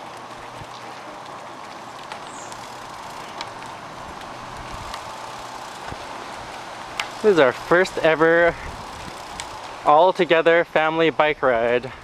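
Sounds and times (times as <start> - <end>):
bicycle tyres on pavement: 0.0 - 12.0
wind on microphone: 8.4 - 9.6.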